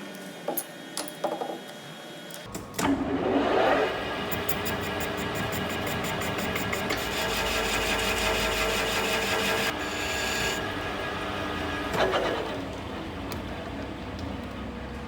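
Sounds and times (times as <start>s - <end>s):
metal lathe humming: 4.0s - 12.8s.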